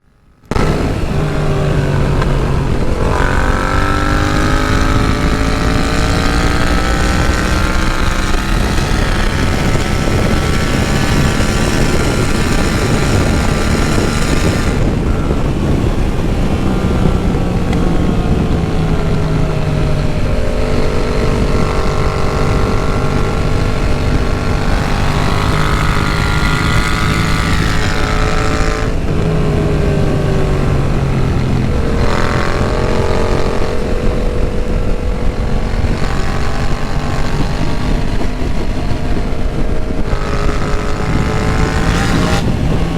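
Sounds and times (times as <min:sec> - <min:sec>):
motorcycle engine accelerating: 0:00.0 - 0:42.9.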